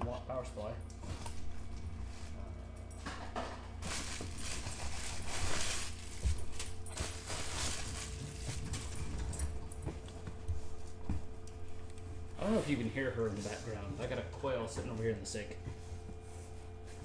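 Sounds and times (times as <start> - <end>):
low electrical hum: 0.0 - 17.0
packaging rustling: 3.8 - 9.2.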